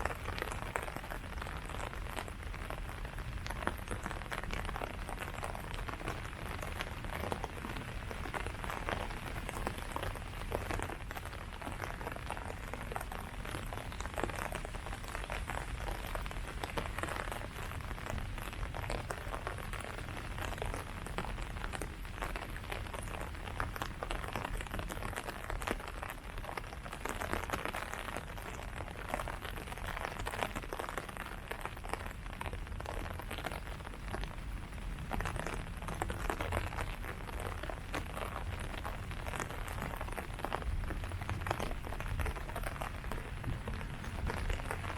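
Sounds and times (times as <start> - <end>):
rain pattering on leaves: 0.0 - 44.9
low steady rumble: 34.2 - 44.9.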